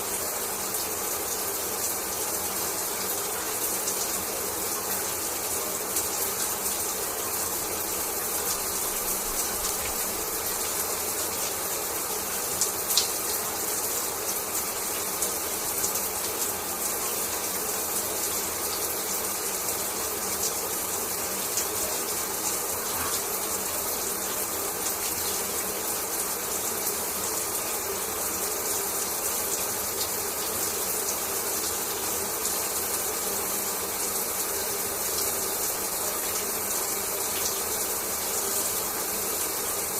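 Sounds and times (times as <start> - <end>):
shower water spraying: 0.0 - 39.9.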